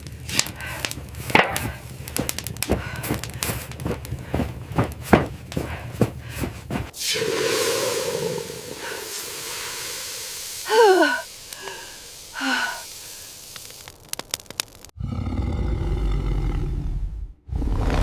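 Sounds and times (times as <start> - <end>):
steady hiss: 6.9 - 15.0.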